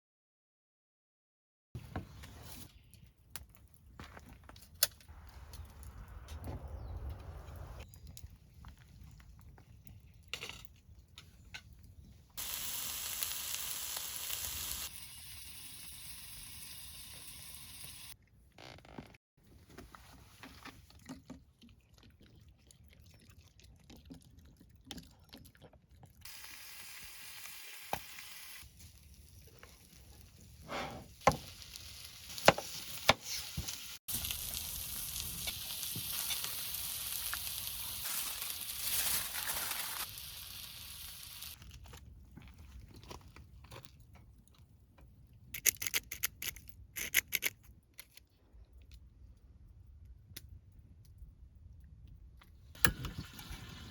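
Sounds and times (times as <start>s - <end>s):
hissing sizzling: 12.4s - 18.2s, 26.3s - 41.6s.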